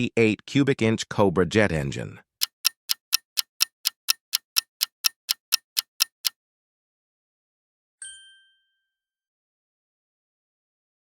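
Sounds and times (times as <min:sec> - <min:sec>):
countdown timer ticking: 0:02.4 - 0:06.3.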